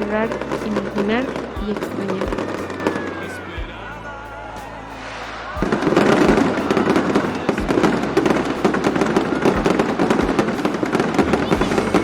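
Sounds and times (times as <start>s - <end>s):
rapid crackling pops: 4.6s - 12.0s.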